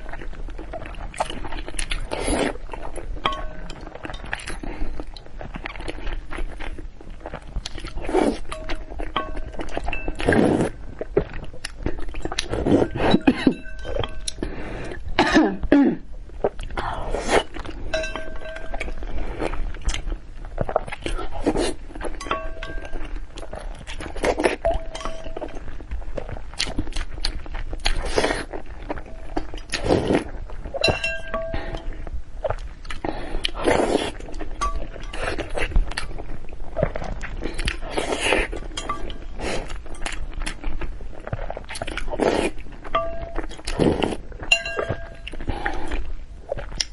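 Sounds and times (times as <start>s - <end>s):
chewing and crunching: 0.0s - 46.9s
slurping: 0.7s - 2.9s, 7.6s - 15.0s, 29.6s - 40.1s
utensils clinking: 17.9s - 19.0s, 44.5s - 45.3s.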